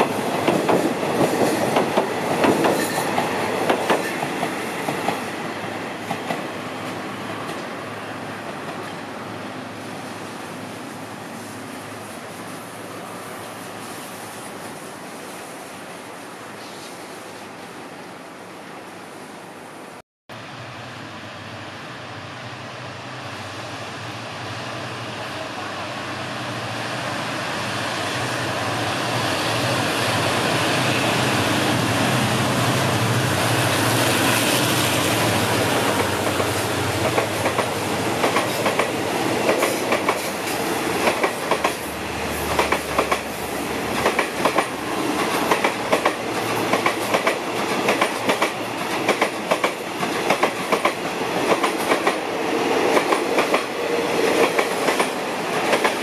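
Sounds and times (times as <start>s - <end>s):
train wheels clacking over rail joints: 0.0s - 5.2s, 35.8s - 41.8s, 42.4s - 52.2s
diesel locomotive engine hum: 20.3s - 56.0s.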